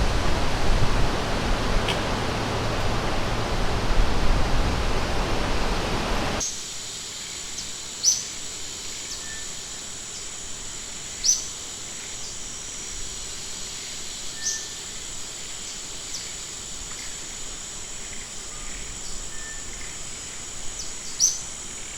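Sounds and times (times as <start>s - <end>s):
rushing river water: 0.0s - 6.4s
high-pitched insect drone: 6.4s - 21.9s
faint bird chirps: 9.0s - 9.6s, 14.4s - 14.9s, 18.5s - 19.9s, 20.8s - 21.5s.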